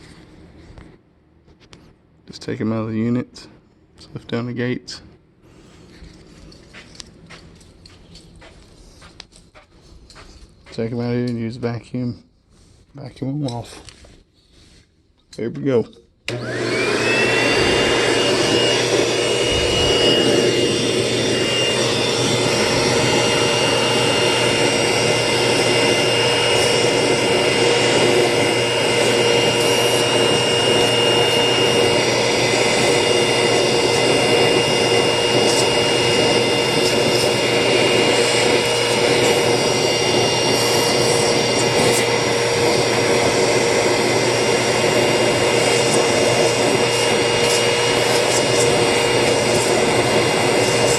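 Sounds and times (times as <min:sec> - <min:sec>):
vacuum cleaner running: 0:16.3 - 0:50.9.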